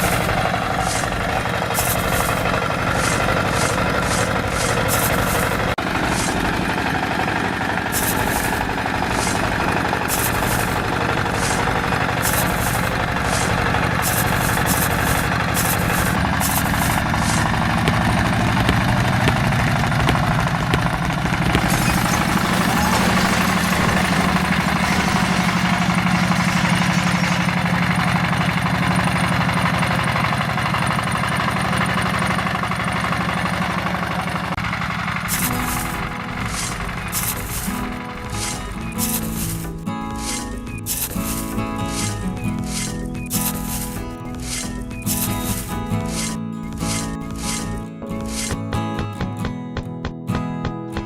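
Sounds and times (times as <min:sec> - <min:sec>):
rattling: 0:00.0 - 0:30.1
small engine running: 0:00.0 - 0:49.5.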